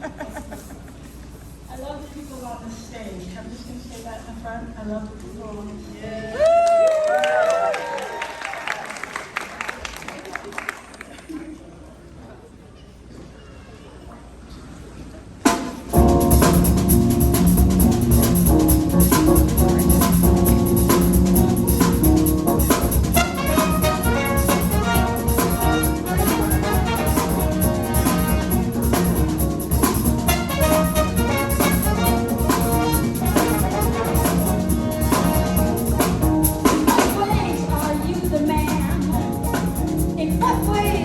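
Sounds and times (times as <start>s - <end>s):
sharp drum hit: 15.5s - 37.4s
drum kit beat: 15.5s - 41.0s
live band playing: 15.5s - 41.0s.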